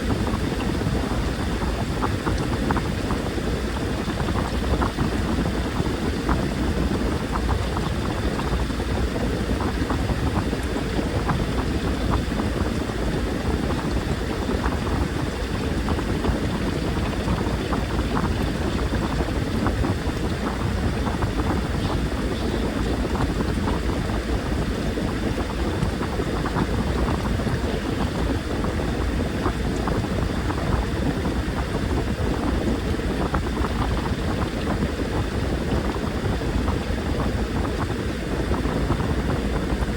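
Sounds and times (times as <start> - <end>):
washing machine motor rumble: 0.0 - 39.9
water sloshing in washing machine: 0.0 - 39.9.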